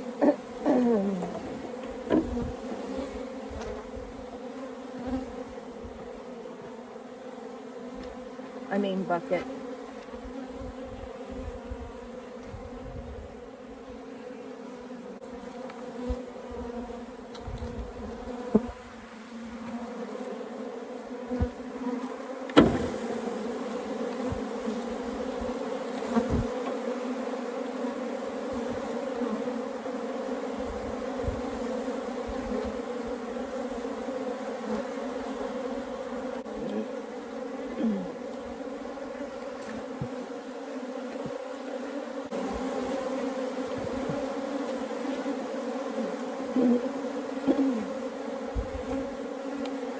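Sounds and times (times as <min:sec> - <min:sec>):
swarm of bees buzzing: 0:00.0 - 0:49.9
sharp knocks: 0:22.6 - 0:22.9.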